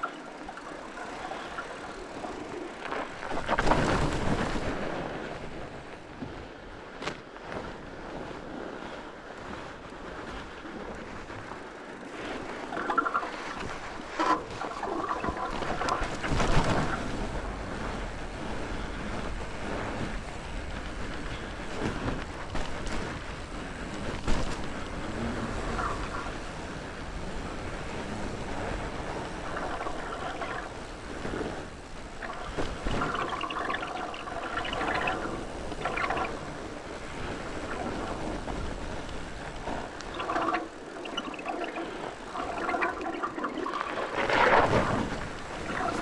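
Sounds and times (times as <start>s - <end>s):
bike tyres rumbling over dirt: 0.0s - 46.0s
wind buffeting microphone: 0.0s - 46.0s
bike rattling over bumps: 10.2s - 40.0s.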